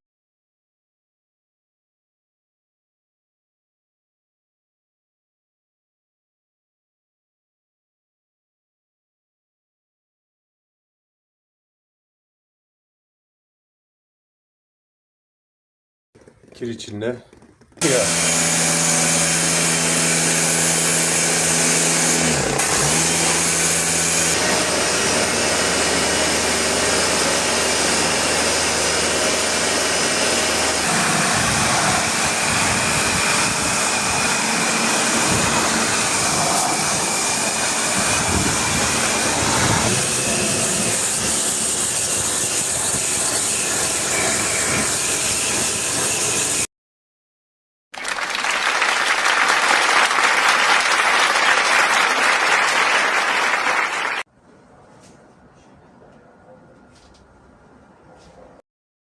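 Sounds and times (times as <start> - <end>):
electric motor humming: 17.8 - 46.6.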